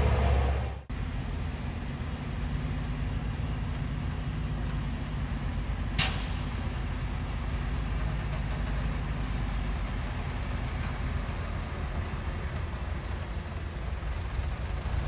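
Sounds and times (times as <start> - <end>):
heavy diesel engine running: 0.0 - 15.0
sharp hiss: 0.9 - 9.4.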